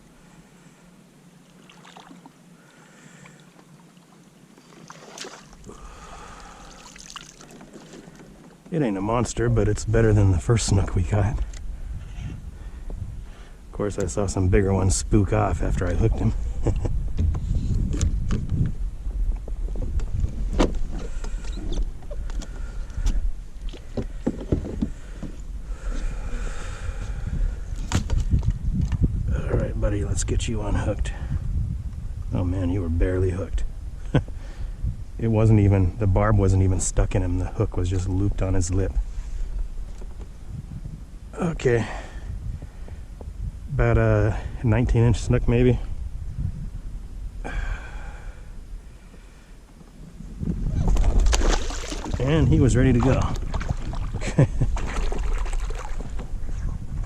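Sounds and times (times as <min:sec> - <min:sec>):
water splashing: 0:01.5 - 0:02.4, 0:03.3 - 0:08.2, 0:50.8 - 0:56.4
wind rumble on microphone: 0:08.9 - 0:57.0.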